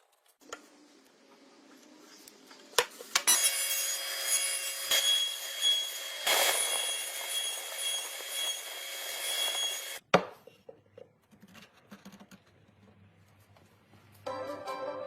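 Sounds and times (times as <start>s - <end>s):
power tool whining on wood: 3.2s - 10.0s.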